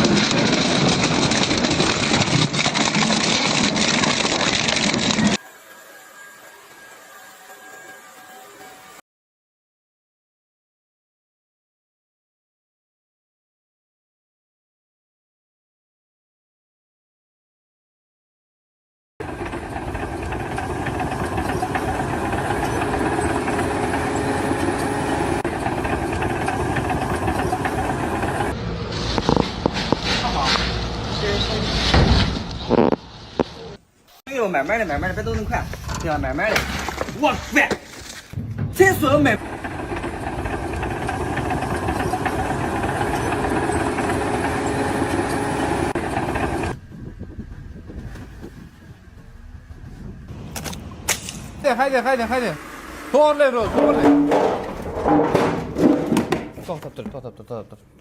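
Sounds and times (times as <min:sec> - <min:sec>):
machine running steadily: 0:19.2 - 0:31.1, 0:38.4 - 0:48.4.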